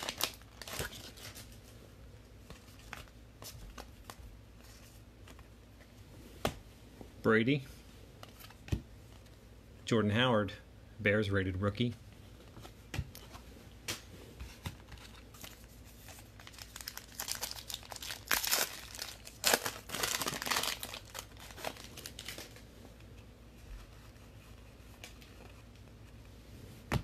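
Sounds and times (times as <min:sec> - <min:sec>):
plastic wrapper tearing and crinkling: 0:00.0 - 0:01.6, 0:15.4 - 0:22.6.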